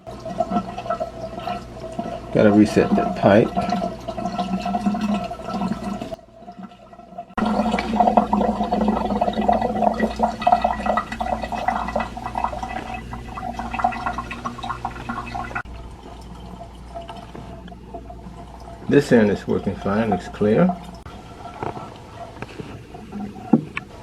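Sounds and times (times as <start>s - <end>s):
water gurgling down a drain: 0.0s - 24.0s
steady hum: 7.4s - 18.8s.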